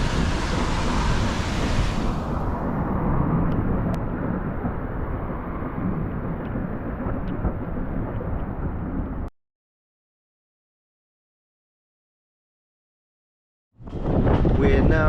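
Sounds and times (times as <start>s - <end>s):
train carriage rumbling on rails: 0.0s - 9.3s, 13.8s - 15.0s.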